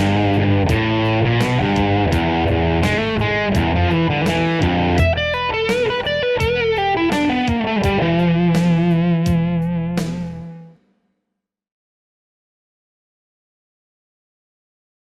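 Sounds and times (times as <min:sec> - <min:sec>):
distorted electric guitar: 0:00.0 - 0:10.8
steady beat: 0:00.0 - 0:10.8.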